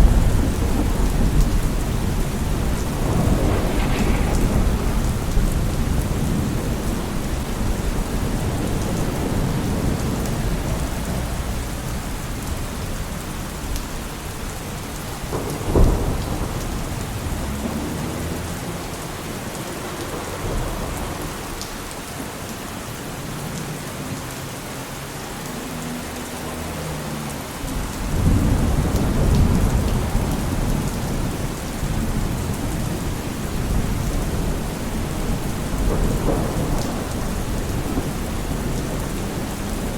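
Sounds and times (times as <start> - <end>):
deep rumble: 0.0 - 8.6
rain on hard surfaces: 0.0 - 39.9.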